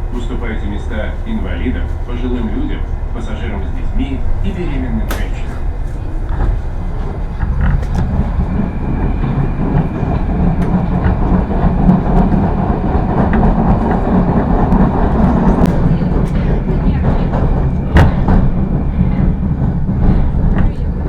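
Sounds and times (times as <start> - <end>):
train wheels rumbling on rails: 0.0 - 21.0
sharp rail clicks: 4.9 - 21.0.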